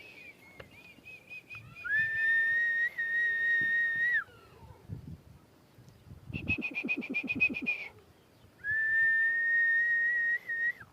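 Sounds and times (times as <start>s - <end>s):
long steady whistle: 0.0s - 4.2s, 8.6s - 10.9s.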